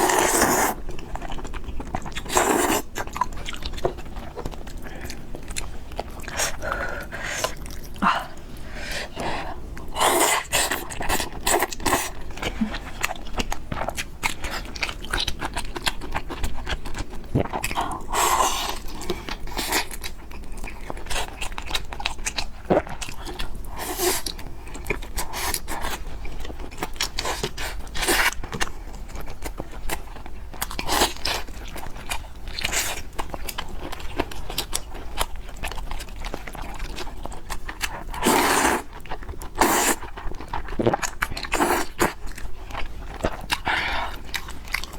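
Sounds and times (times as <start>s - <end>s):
noodles slurped: 0.0s - 0.9s, 38.0s - 42.3s
chewing with wet clicks: 0.0s - 8.5s, 9.8s - 44.9s.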